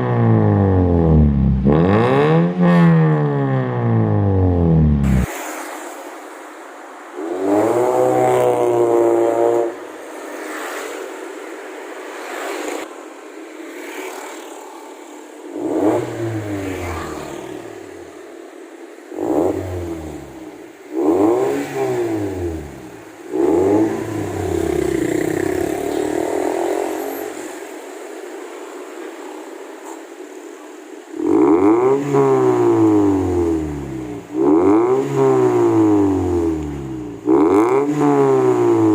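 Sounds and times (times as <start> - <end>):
car engine revving: 0.0 - 5.5, 7.2 - 11.1, 15.4 - 28.0, 31.1 - 38.9.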